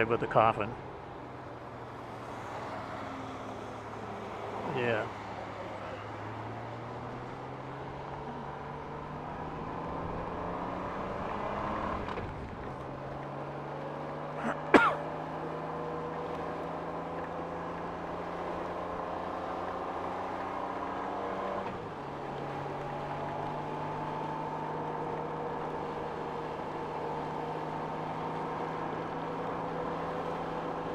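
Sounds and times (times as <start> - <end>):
engine cough: 14.3 - 15.2.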